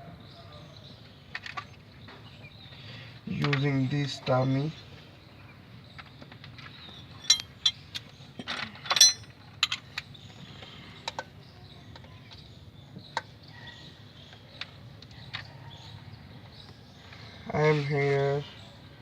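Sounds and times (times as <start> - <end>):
hand tools clinking on metal: 7.2 - 7.8, 8.4 - 9.8.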